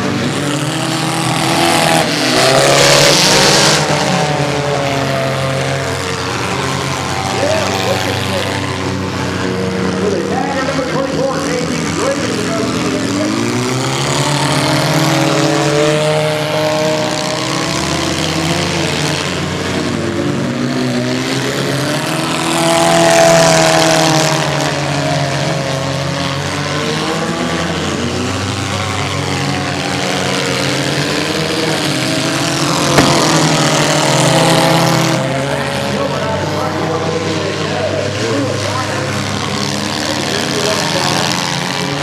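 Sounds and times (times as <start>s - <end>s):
racing car engines revving: 0.0s - 42.0s
sharp knock: 33.0s - 34.0s.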